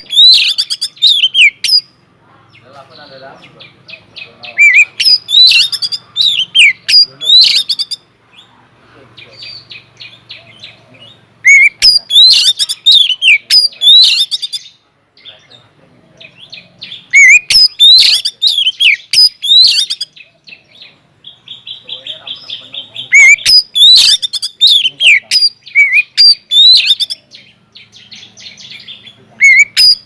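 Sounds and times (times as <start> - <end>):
bird singing sweeping whistles: 17.2 - 20.1.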